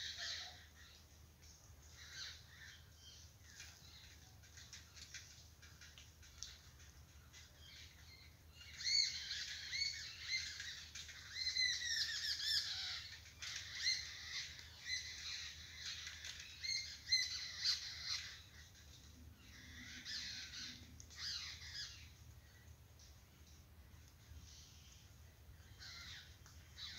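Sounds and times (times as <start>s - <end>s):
wild birds chirping: 0.0s - 26.9s.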